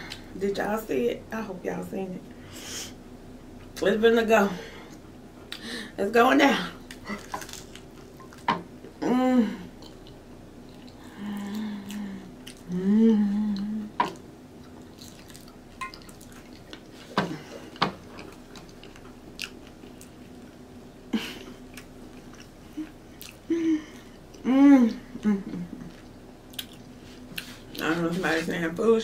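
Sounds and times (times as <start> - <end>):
person humming: 9.0 - 9.8, 11.0 - 14.1, 23.5 - 25.9
chewing soggy food: 14.6 - 20.6.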